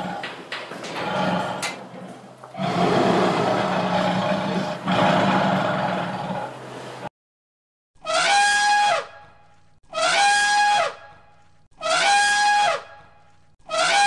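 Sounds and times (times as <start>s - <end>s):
elephant trumpeting: 13.7s - 14.0s.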